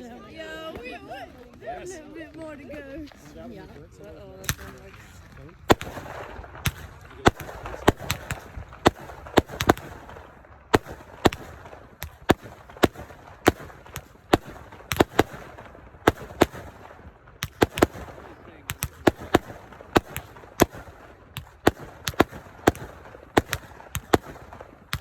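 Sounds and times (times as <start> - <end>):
fireworks crackling: 0.2 - 25.0
fireworks bangs: 4.4 - 25.0.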